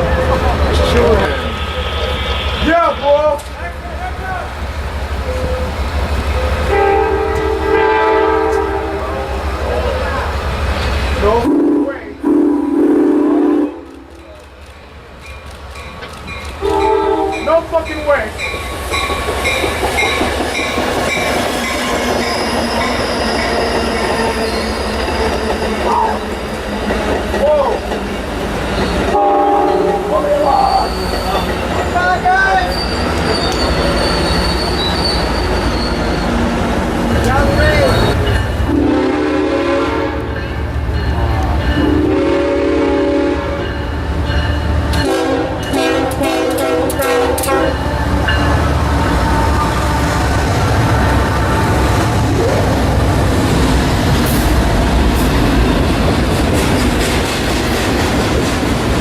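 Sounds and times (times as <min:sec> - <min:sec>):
high squeal from train wheels: 0:00.0 - 0:03.6, 0:05.2 - 0:07.7, 0:14.7 - 0:27.6, 0:28.4 - 0:36.6, 0:37.2 - 0:39.0, 0:47.5 - 0:52.6
train wheels on rails: 0:00.0 - 0:11.5, 0:13.6 - 0:59.0
locomotive air horn: 0:06.6 - 0:09.4, 0:11.4 - 0:14.0, 0:16.6 - 0:17.4, 0:29.1 - 0:30.1, 0:37.9 - 0:40.3, 0:41.8 - 0:43.7, 0:45.0 - 0:48.2, 0:48.8 - 0:52.7.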